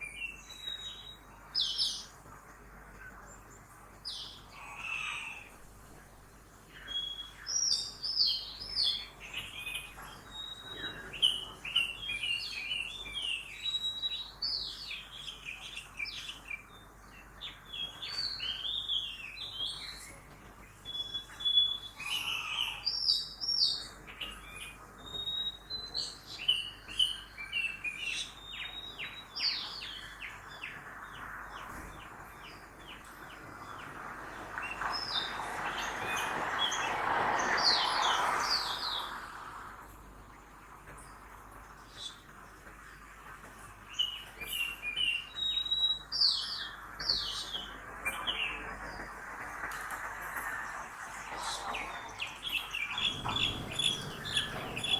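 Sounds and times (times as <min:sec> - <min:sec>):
passing traffic noise: 0:29.4 - 0:43.4, 0:46.6 - 0:54.9
birds chirping and singing: 0:51.4 - 0:54.9.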